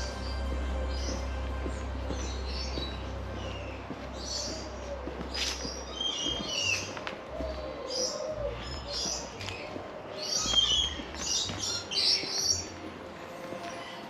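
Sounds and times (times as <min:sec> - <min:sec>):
steady low rumble: 0:00.0 - 0:06.5
birds chirping: 0:00.0 - 0:14.0.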